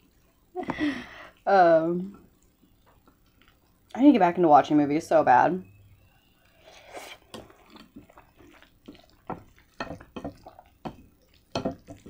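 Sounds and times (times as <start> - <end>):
wet chewing smacks: 2.2 - 4.0, 6.4 - 12.0.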